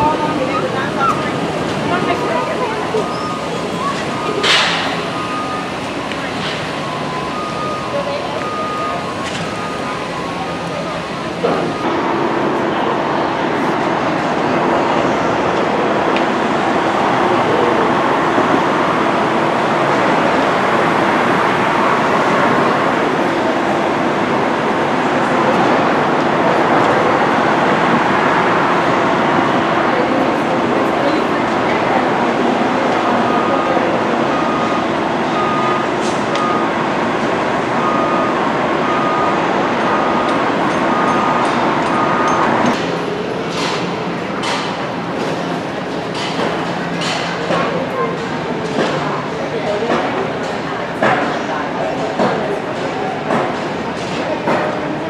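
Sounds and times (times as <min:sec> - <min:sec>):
vehicle backup alarm beeping: 0:00.0 - 0:15.9, 0:29.2 - 0:48.2
machinery and traffic noise: 0:00.0 - 0:55.0.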